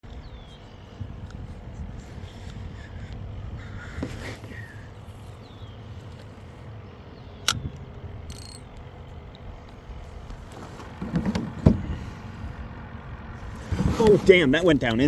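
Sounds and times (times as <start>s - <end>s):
sharp click: 7.4s - 8.9s
fishing reel ratcheting whir: 8.3s - 8.6s.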